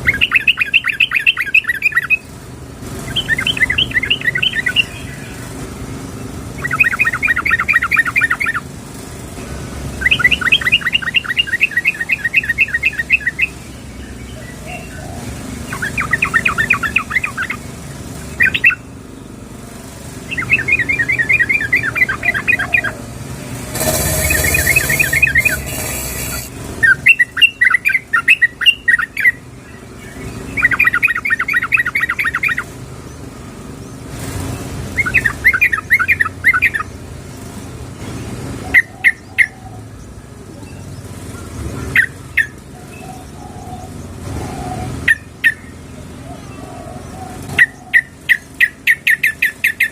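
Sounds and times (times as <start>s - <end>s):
short sharp bird notes: 20.3s - 29.1s.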